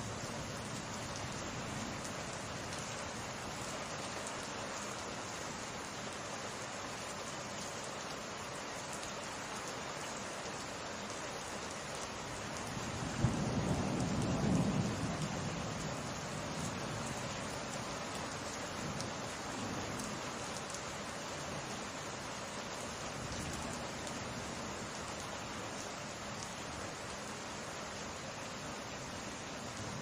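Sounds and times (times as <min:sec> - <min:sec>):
rain falling: 0:00.0 - 0:30.0
thunder crack and rumble: 0:13.1 - 0:15.9.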